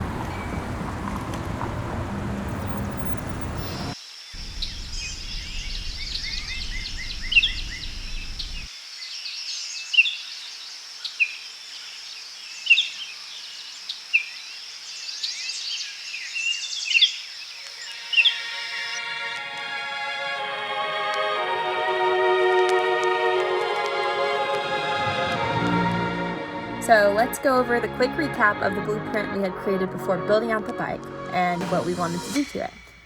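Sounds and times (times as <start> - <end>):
birds chirping and calling: 0.0 - 8.7
low rumble: 1.0 - 8.7.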